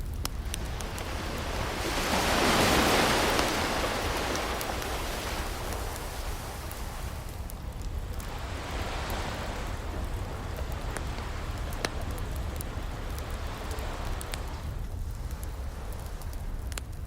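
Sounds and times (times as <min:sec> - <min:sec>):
ocean waves washing: 0:00.0 - 0:14.8
wood fire crackling: 0:00.0 - 0:17.0.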